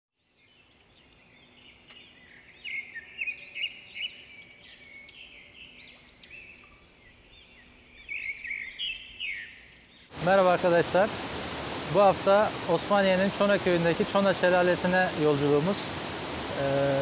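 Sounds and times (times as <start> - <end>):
birds chirping and calling: 0.4 - 10.1.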